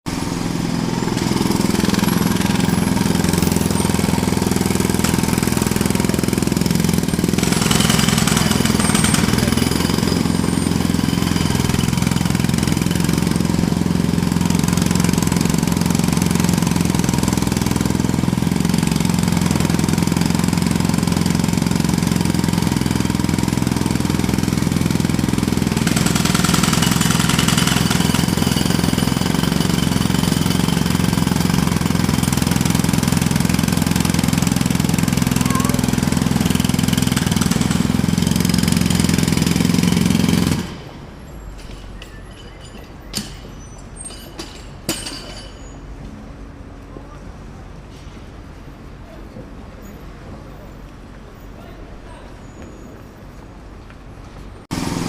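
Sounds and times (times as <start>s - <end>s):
engine drone: 0.0s - 43.3s, 54.7s - 55.0s
jackhammer hammering: 0.0s - 45.8s, 54.7s - 55.0s.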